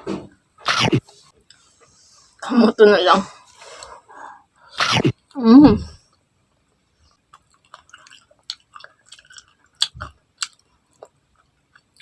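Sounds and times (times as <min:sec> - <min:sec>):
person chewing food: 0:07.0 - 0:12.0.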